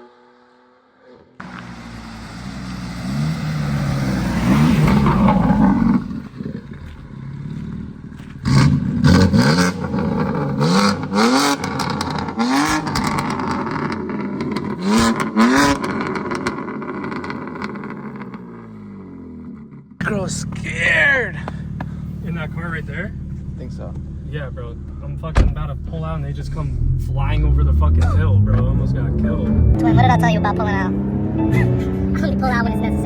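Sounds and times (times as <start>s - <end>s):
car engine accelerating hard: 1.4s - 19.3s, 20.0s - 33.0s
sharp cracks at gear shifts: 21.3s - 22.3s.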